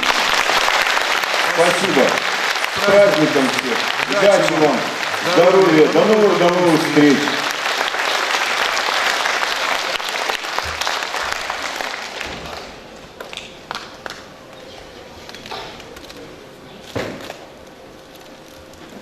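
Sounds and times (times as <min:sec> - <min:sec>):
audience applauding: 0:00.0 - 0:14.2
scattered claps and knocks: 0:00.0 - 0:14.3.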